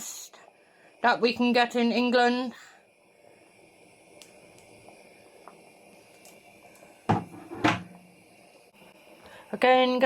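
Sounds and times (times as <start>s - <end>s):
tin knocking on kitchen surface: 7.1s - 7.9s.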